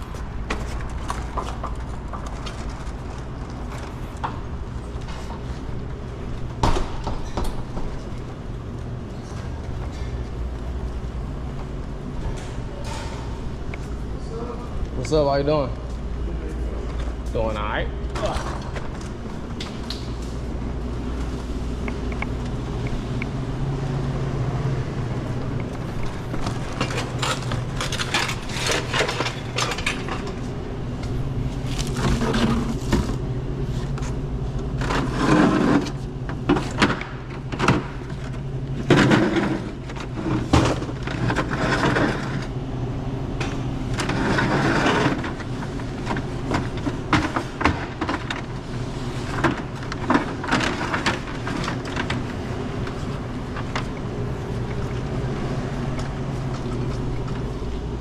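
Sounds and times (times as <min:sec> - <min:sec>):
steady low hum: 0:00.0 - 0:58.0
objects knocking and rattling: 0:43.4 - 0:48.6, 0:49.2 - 0:54.9.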